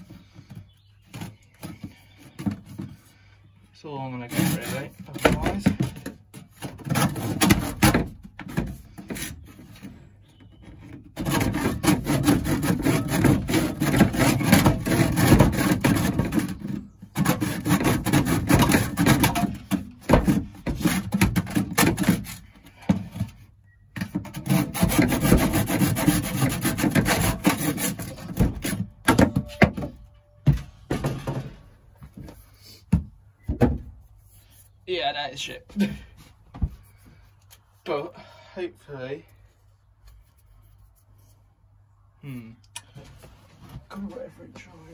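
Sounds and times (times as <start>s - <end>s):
hand tool rasping pipe: 4.2s - 8.0s, 10.8s - 23.2s, 24.1s - 29.6s.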